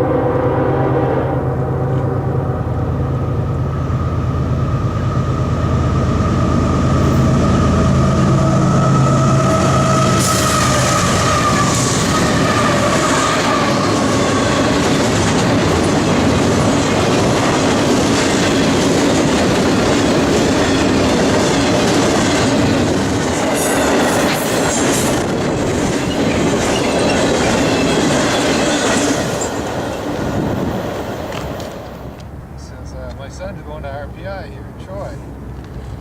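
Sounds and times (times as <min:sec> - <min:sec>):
train wheels rumbling on rails: 0:01.4 - 0:36.0
wheel squeal: 0:08.3 - 0:15.0, 0:25.9 - 0:30.1
clickety-clack over rail joints: 0:10.0 - 0:32.4.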